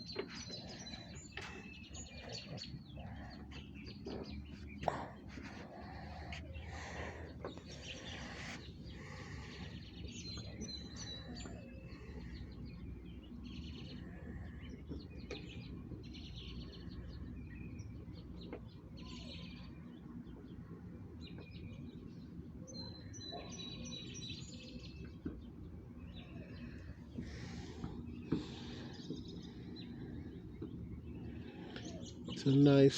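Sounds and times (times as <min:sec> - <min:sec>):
low outdoor rumble: 0:00.0 - 0:16.1
songbirds chirping: 0:00.0 - 0:32.9.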